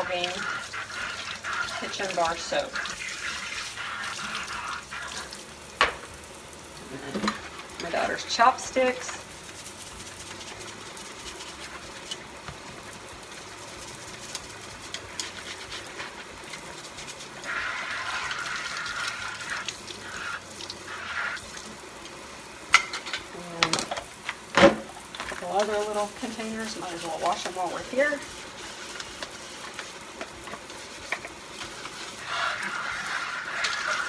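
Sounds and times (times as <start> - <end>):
tap water running into sink: 0.0 - 34.0.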